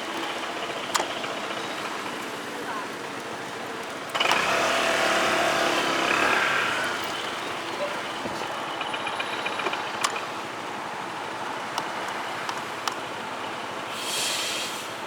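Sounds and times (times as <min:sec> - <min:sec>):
road traffic: 0:00.0 - 0:15.0
sharp clicks: 0:00.2 - 0:02.3, 0:04.1 - 0:10.4, 0:11.7 - 0:13.0
brief hiss: 0:13.9 - 0:15.0.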